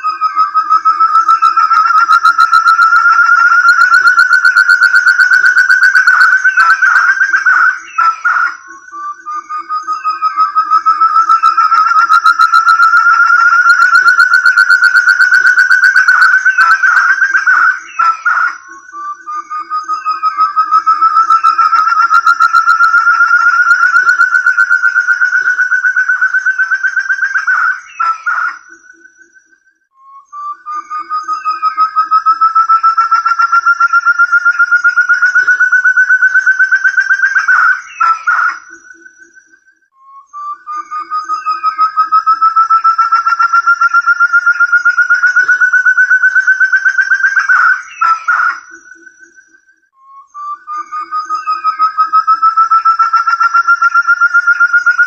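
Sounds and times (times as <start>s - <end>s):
partridge whistled calls: 0.0s - 55.0s.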